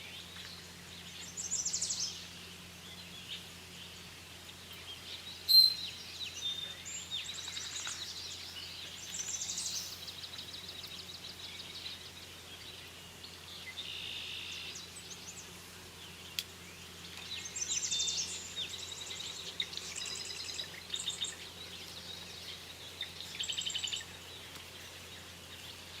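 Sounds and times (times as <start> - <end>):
songbirds chirping and trilling: 0.0 - 26.0
loud sharp bird call: 5.5 - 6.0.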